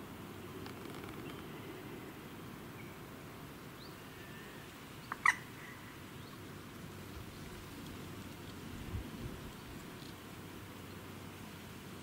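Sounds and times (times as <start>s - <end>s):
low background noise: 0.0s - 12.0s
faint bird chirps: 0.8s - 3.1s, 3.7s - 6.4s
sharp bird call: 4.2s - 5.9s.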